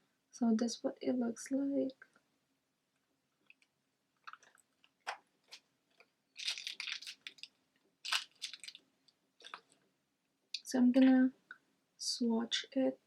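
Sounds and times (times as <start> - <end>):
crinkly packaging rustling: 4.2 - 8.8, 9.4 - 9.8.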